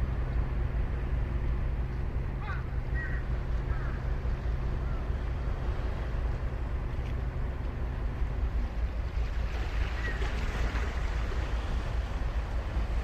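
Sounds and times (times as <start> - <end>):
low steady hum: 0.0 - 13.0
faint bird calls: 2.4 - 4.1, 4.7 - 5.3.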